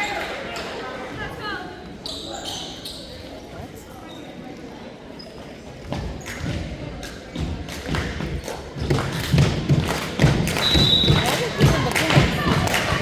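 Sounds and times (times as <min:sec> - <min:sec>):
voices: 0:10.8 - 0:13.0.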